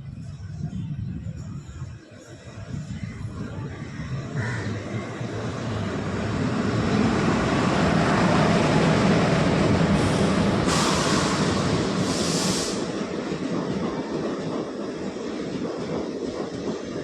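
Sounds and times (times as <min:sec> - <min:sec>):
train rumbling on tracks: 0:00.0 - 0:17.0
short hisses: 0:10.6 - 0:13.0.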